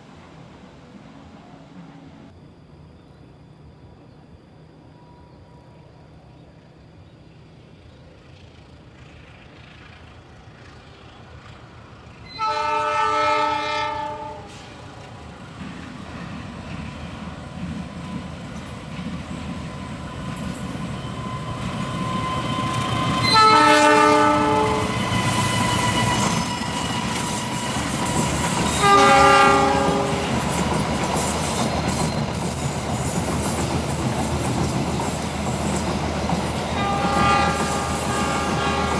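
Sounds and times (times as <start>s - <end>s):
train rumble and wheel clatter: 0.0s - 38.9s
train horn blasts: 12.3s - 14.8s, 21.4s - 27.7s, 28.7s - 30.4s, 36.6s - 38.9s.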